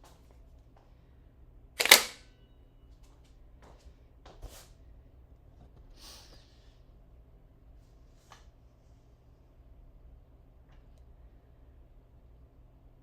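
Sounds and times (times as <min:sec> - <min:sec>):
sharp mechanical clack: 0:01.8 - 0:02.2.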